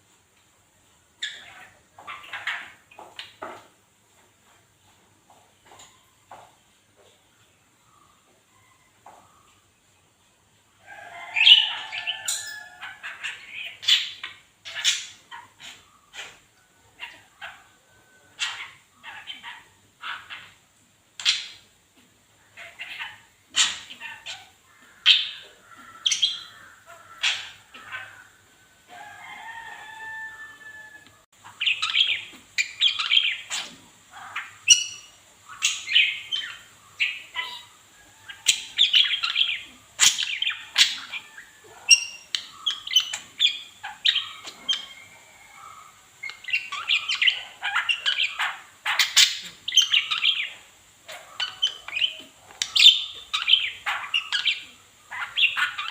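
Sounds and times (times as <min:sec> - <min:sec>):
lovebird chirping: 0:31.4 - 0:55.9.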